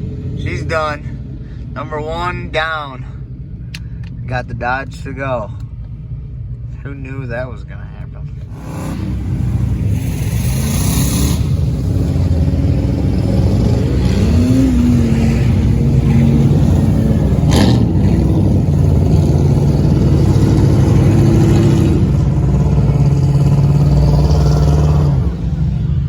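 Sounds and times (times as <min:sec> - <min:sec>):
pickup engine revving: 0:08.3 - 0:26.0.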